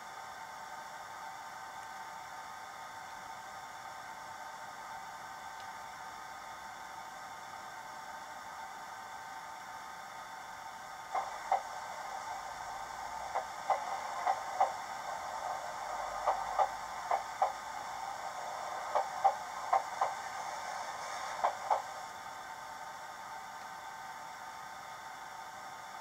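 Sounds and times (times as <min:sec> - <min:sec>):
faint hiss: 0:00.0 - 0:26.0
simulated wheel clacks: 0:11.1 - 0:22.2.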